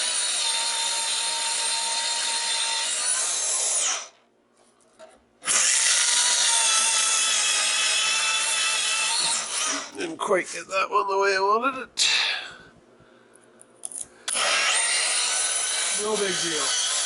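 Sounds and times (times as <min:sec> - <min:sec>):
electric power tool whining: 0:05.4 - 0:10.0, 0:14.3 - 0:17.0.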